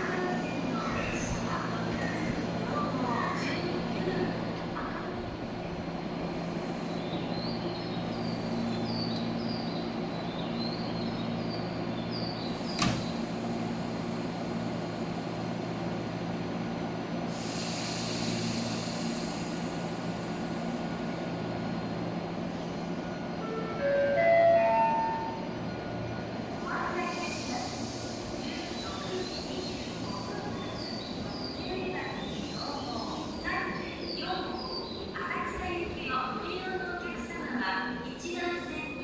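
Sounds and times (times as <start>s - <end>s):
electric train humming: 0.0s - 39.0s
air hiss: 17.2s - 21.4s, 26.9s - 31.3s.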